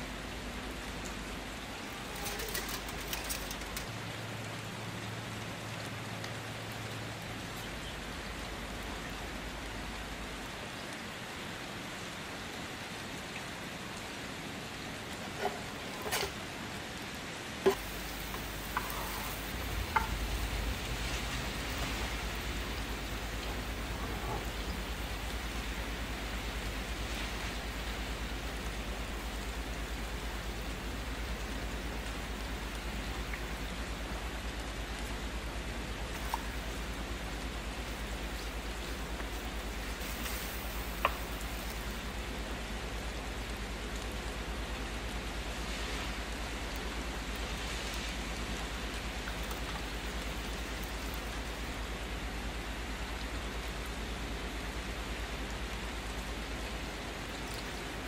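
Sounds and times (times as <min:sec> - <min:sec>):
food sizzling in hot oil: 0:17.7 - 0:28.2, 0:36.1 - 0:42.2.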